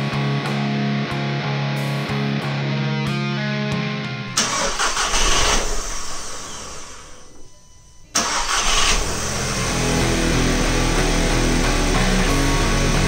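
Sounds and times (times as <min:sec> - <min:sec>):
car engine starting: 0:04.3 - 0:13.0.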